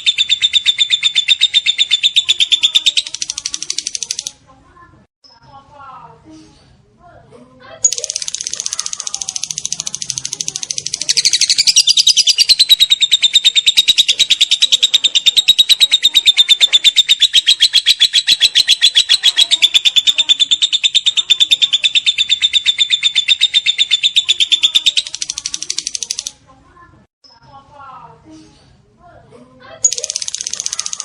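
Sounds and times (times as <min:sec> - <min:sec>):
bird shrill chattering song: 0:00.0 - 0:04.3, 0:07.9 - 0:26.3, 0:29.8 - 0:31.0.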